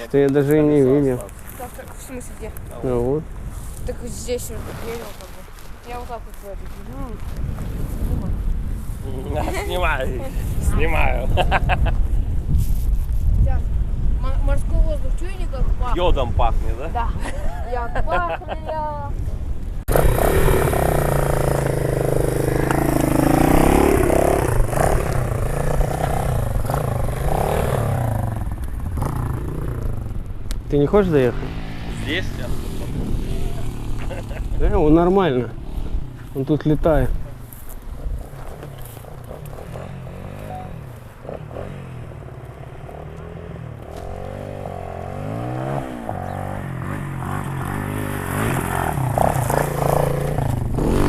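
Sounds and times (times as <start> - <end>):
motorbike engine revving: 19.9 - 30.2, 31.1 - 36.2, 38.1 - 51.0.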